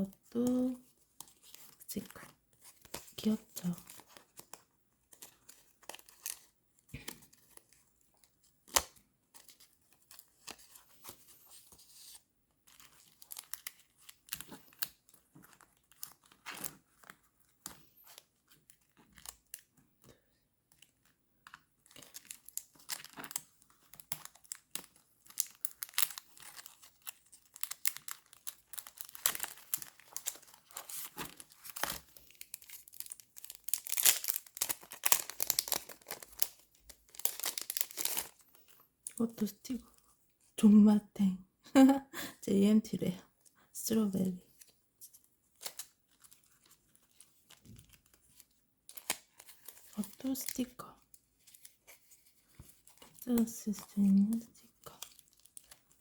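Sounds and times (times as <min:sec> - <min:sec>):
crinkling and rustling packs: 0:00.0 - 0:39.2, 0:44.4 - 0:56.0
sharp plastic crackles: 0:00.3 - 0:39.2.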